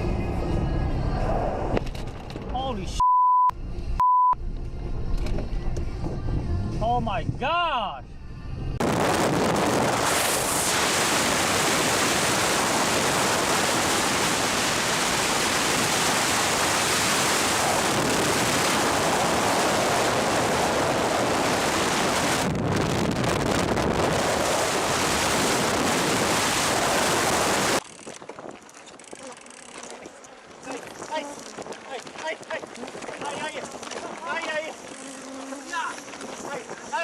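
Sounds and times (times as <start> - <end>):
loud steady rushing noise: 8.8 - 27.8.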